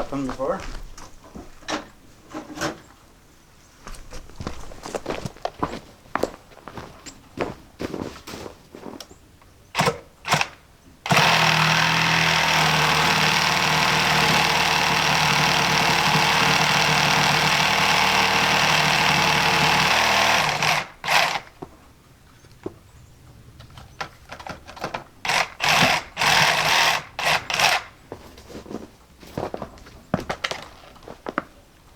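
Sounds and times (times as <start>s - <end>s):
motor-driven machine humming: 11.1s - 21.5s.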